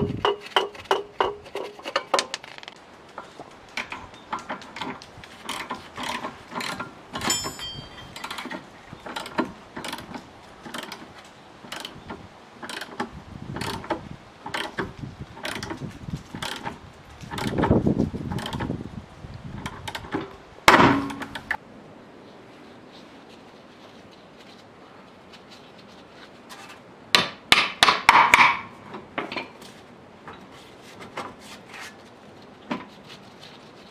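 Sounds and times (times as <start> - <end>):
metal tools clinking and clanking: 1.5 - 11.0
ringing metal strike: 7.2 - 8.2.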